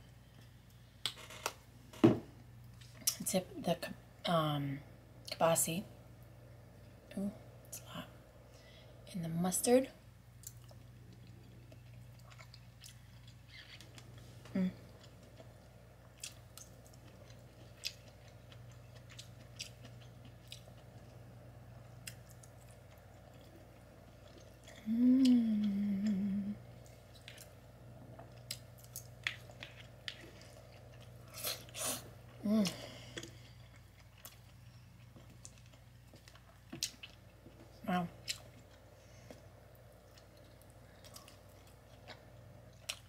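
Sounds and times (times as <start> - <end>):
person chewing food: 10.4 - 43.0
person humming mmm: 14.4 - 14.9, 24.7 - 26.8, 31.8 - 33.2.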